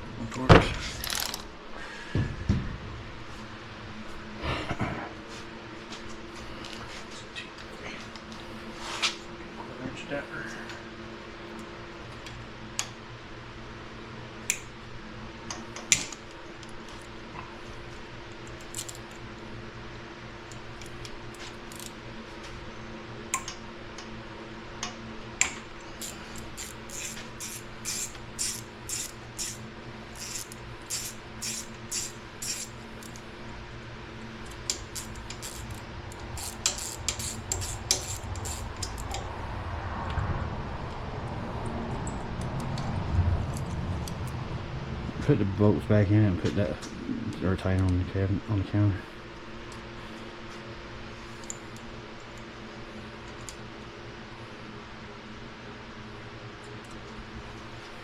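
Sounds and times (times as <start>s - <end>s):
steady low hum: 0.0s - 58.0s
ratchet clicking: 18.4s - 19.2s, 20.5s - 22.0s, 25.4s - 33.2s, 34.6s - 39.2s, 51.4s - 51.6s.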